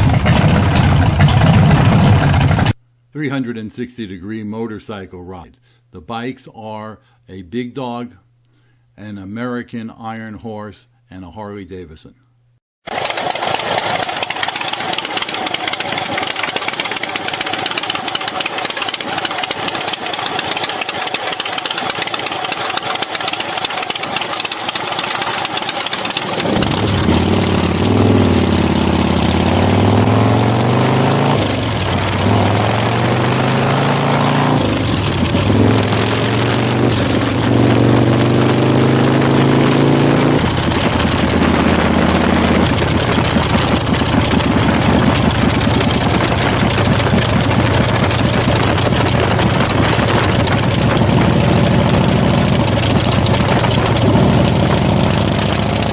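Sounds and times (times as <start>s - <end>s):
motorcycle engine accelerating: 0.0s - 2.8s, 12.9s - 55.9s
wind noise: 42.6s - 51.6s, 53.3s - 54.9s.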